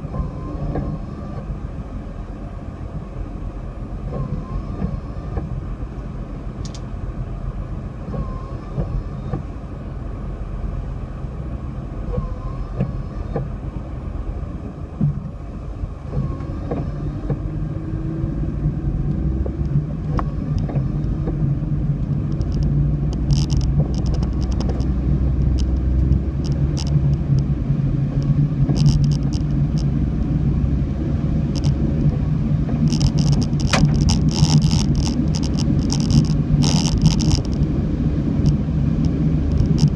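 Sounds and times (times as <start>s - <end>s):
car engine and road rumble: 0.0s - 39.9s
sharp ticks: 32.7s - 37.7s.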